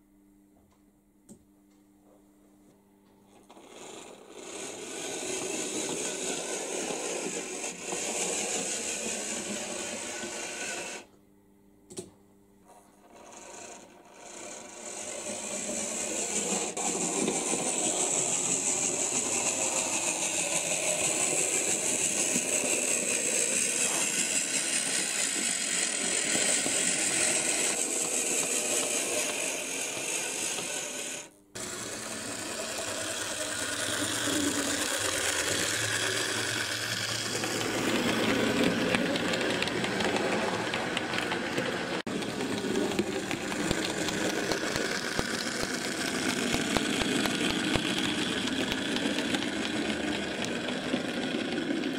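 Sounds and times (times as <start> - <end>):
model train motor whirring: 3.4 - 11.1, 12.7 - 51.9
model train wheels rattling: 3.5 - 11.0, 13.0 - 51.9
click: 11.9 - 12.2.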